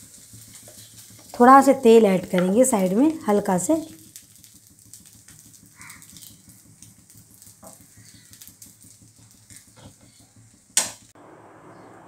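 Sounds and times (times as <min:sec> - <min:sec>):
faint sizzle of frying: 0:00.0 - 0:12.0.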